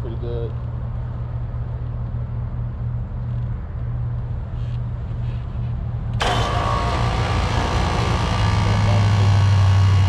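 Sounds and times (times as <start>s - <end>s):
loud rushing hiss: 6.2s - 10.0s
low machine hum: 6.2s - 10.0s.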